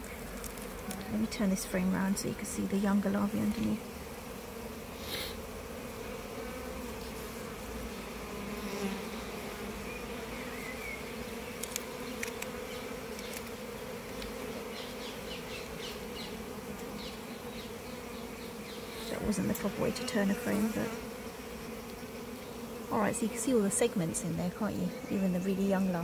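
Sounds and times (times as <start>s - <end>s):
honey bees buzzing: 0.0s - 26.0s
faint clicks: 11.6s - 12.5s, 13.1s - 14.4s.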